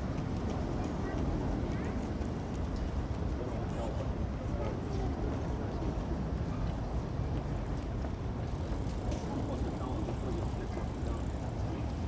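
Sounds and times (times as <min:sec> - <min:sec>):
faint indistinct voices: 0:08.5 - 0:12.0.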